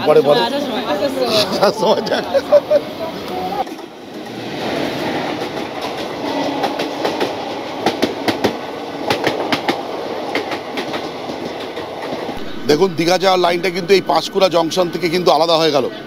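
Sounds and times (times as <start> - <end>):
wheels clacking over rail joints: 3.3 - 12.4
train wheels rumbling on rails: 3.6 - 16.0.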